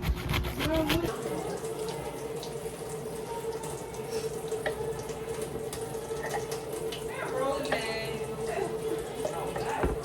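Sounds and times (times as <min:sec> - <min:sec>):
water running: 0:00.0 - 0:10.0.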